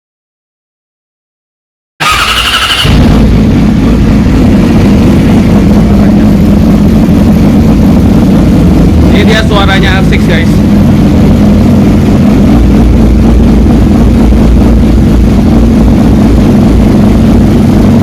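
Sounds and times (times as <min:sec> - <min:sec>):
starter motor cranking whir: 0:02.0 - 0:03.2
motorcycle engine starting: 0:02.0 - 0:18.0.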